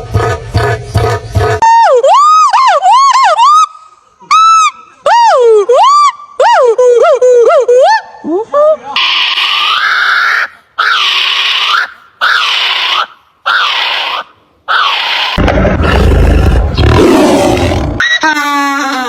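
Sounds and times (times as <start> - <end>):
animal harsh calls: 9.0 - 18.6
deep rough roar: 15.4 - 18.0.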